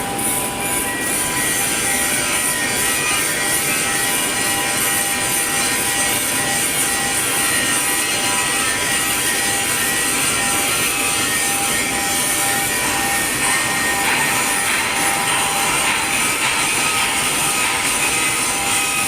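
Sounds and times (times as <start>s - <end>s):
welding arc hiss and crackle: 0.2s - 19.0s.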